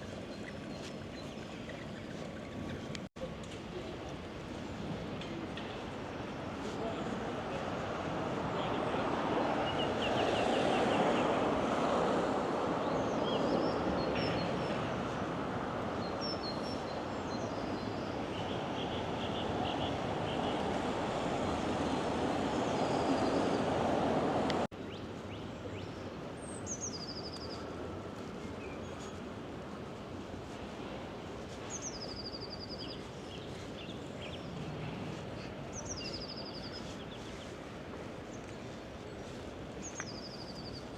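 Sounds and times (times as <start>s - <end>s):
rushing outdoor background noise: 0.0s - 40.9s
small birds chirping: 31.7s - 34.6s, 35.2s - 37.6s, 38.3s - 40.9s.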